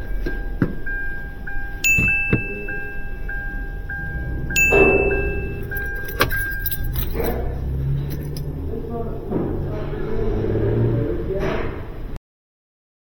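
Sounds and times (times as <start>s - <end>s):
car warning chime: 0.0s - 8.5s
faint repeating beep: 0.4s - 6.6s.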